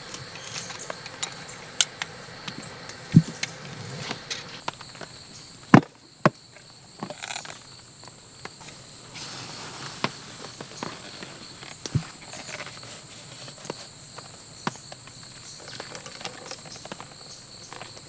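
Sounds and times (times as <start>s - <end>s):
sharp thumps: 0.0s - 4.6s
insects trilling: 0.0s - 18.0s.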